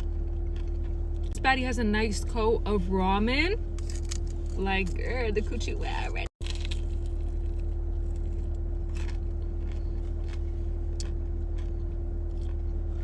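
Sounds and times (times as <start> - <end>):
constant tone: 0.0 - 13.0
low hum: 0.0 - 13.0
faint crisp crunches: 6.4 - 13.0.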